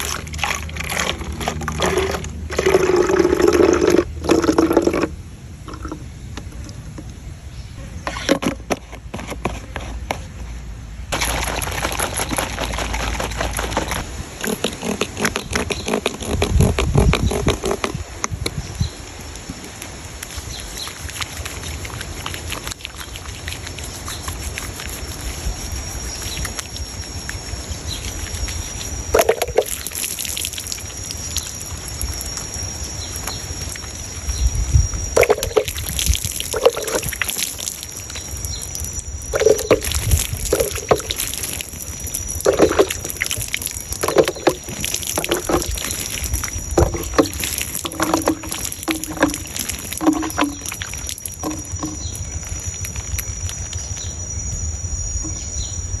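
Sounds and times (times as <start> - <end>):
water sloshing and splashing: 0.0 - 6.7, 11.1 - 15.1, 19.5 - 34.3, 35.0 - 54.0.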